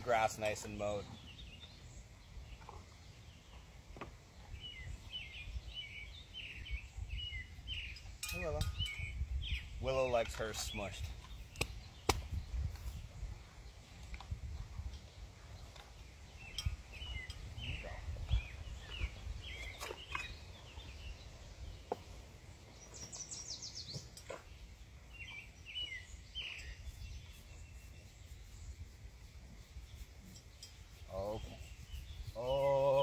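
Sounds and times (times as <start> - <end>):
small bird chirping: 0.1 - 33.0
wind on microphone: 4.4 - 21.9, 25.2 - 33.0.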